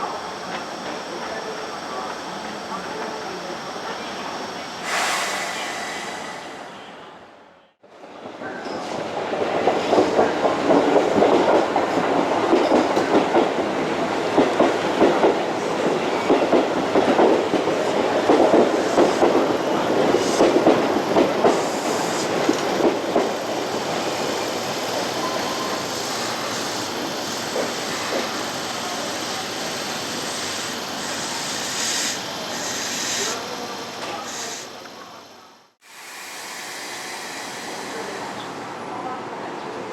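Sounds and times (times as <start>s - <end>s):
train wheels clattering on rails: 8.4s - 31.9s.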